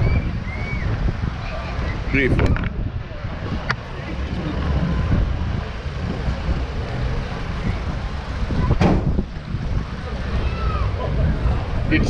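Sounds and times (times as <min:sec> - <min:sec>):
wind buffeting microphone: 0:00.0 - 0:12.0
sharp knock: 0:08.8 - 0:09.1.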